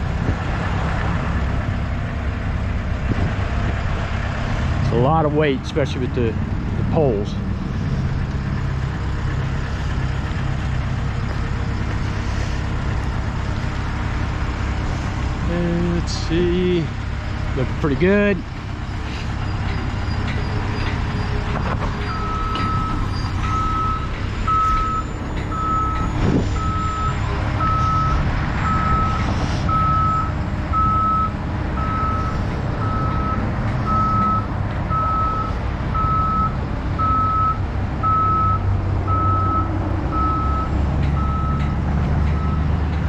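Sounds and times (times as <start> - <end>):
diesel engine rumble: 0.0 - 43.0
truck backup alarm beeping: 18.7 - 43.0.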